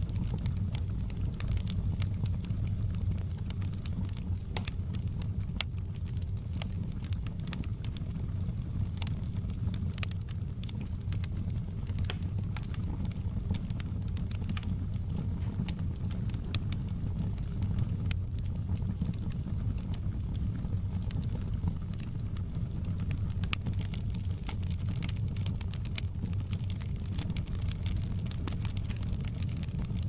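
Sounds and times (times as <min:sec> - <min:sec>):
low rumble of flames: 0:00.0 - 0:30.0
wood fire crackling and popping: 0:00.0 - 0:30.0.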